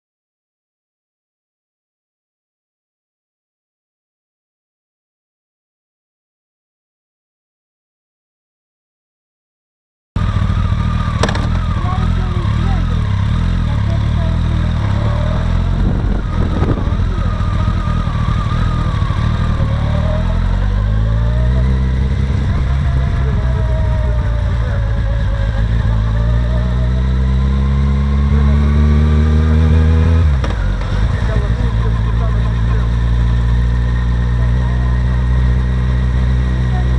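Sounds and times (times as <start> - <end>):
low rumble: 10.2 - 28.8, 29.8 - 36.9
motorcycle engine accelerating: 10.2 - 36.9.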